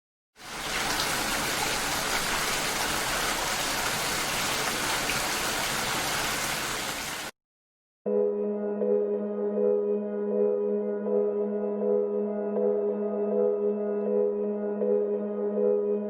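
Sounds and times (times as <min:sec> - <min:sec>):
steady rain falling: 0:00.4 - 0:07.3.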